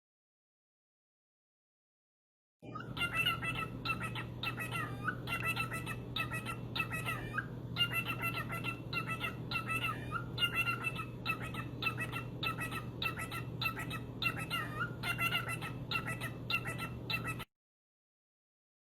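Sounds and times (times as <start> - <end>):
parrot calling: 2.6 - 17.5.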